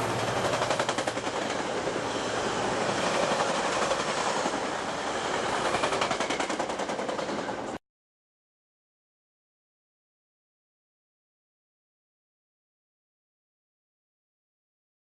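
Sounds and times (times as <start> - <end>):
train rumble: 0.0 - 7.8
train wheels clattering: 0.0 - 7.8.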